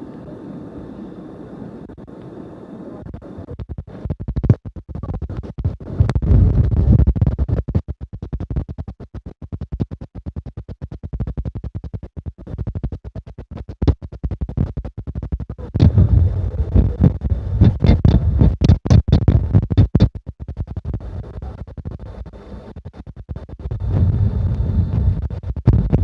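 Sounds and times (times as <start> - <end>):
jet airliner cabin noise: 0.0 - 7.7, 15.6 - 20.0, 23.8 - 26.0.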